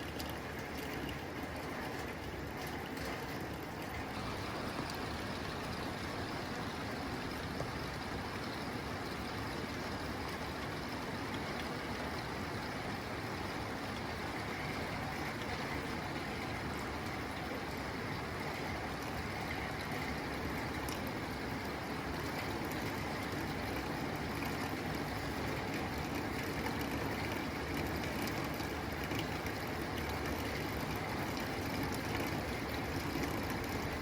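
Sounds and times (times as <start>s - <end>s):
rain on a tin roof: 0.0s - 34.0s.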